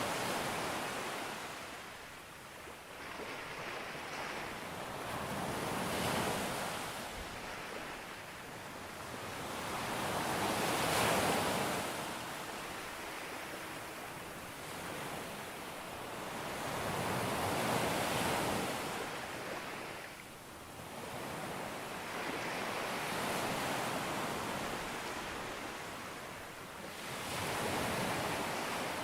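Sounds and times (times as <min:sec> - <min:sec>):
sea waves breaking on a beach: 0:00.0 - 0:29.0.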